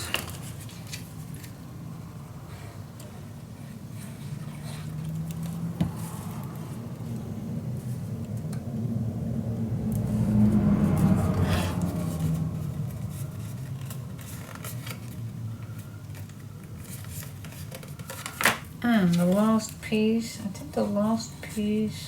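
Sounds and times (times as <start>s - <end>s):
paper rustling and folding: 0.0s - 2.8s, 3.6s - 6.9s, 10.8s - 19.9s
low hum: 6.0s - 16.1s.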